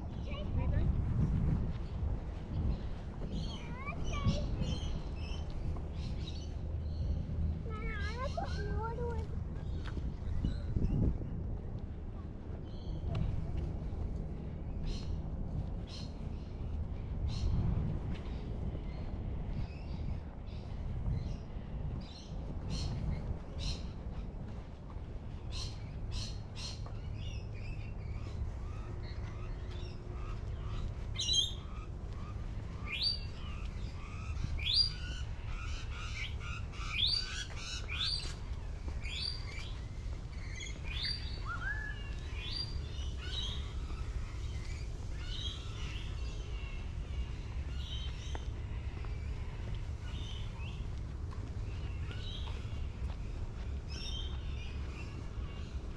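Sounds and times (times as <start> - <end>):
birds chirping: 18.2 - 55.9.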